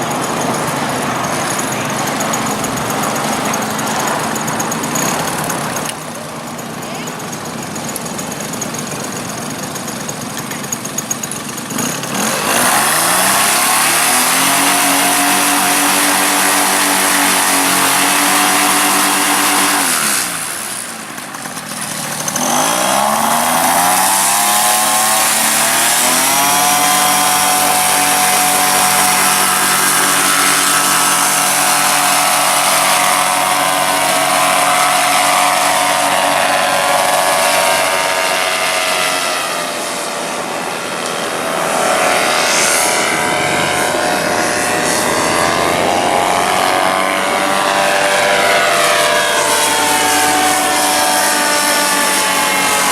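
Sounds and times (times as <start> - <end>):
model aircraft engine buzzing: 0.0 - 52.9.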